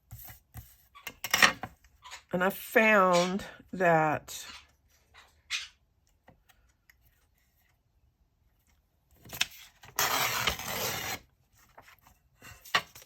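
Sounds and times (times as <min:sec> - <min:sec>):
paper tearing: 0:09.3 - 0:11.3.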